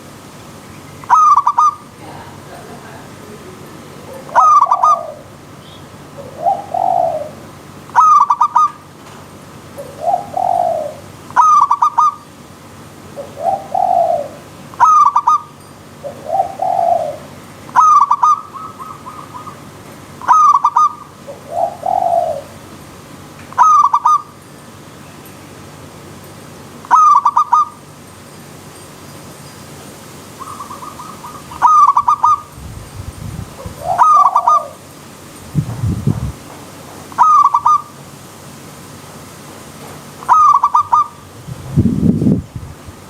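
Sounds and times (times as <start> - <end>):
faint steady hiss: 0.0 - 43.0
dove cooing: 1.0 - 8.9, 9.6 - 12.3, 13.1 - 22.6, 23.5 - 24.4, 26.8 - 27.8, 30.4 - 32.6, 33.5 - 34.9, 37.1 - 37.9, 40.2 - 41.3.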